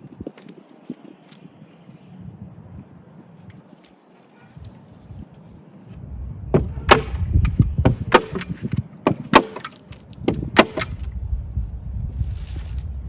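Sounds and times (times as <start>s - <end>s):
low rumble: 5.9s - 8.2s, 10.1s - 13.0s.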